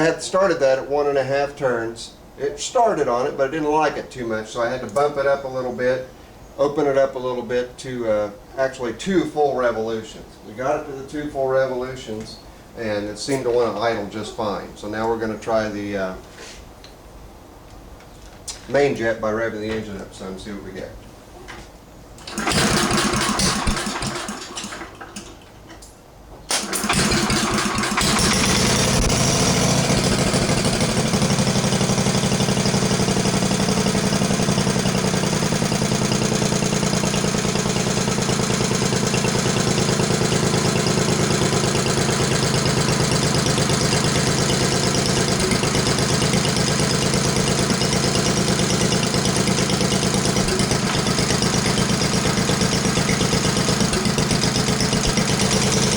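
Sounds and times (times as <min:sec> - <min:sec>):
single-cylinder engine running: 0:22.2 - 0:25.4, 0:26.5 - 0:55.9.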